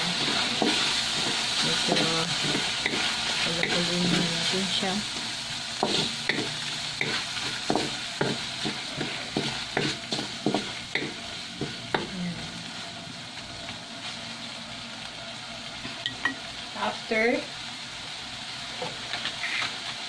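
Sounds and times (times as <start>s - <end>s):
wooden spatula scraping wok: 0.0s - 13.5s, 18.8s - 20.0s
meat sauce sizzling in a wok: 0.0s - 20.0s.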